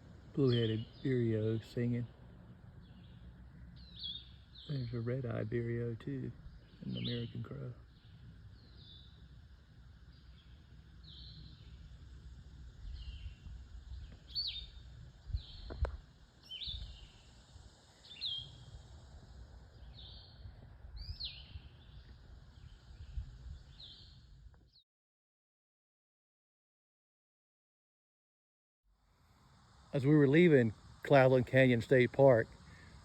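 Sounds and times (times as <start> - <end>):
birds singing whistled phrases: 0.4 - 2.0, 2.8 - 5.4, 6.4 - 9.3, 10.0 - 11.9, 12.8 - 15.8, 16.4 - 17.3, 18.0 - 18.7, 19.8 - 24.3.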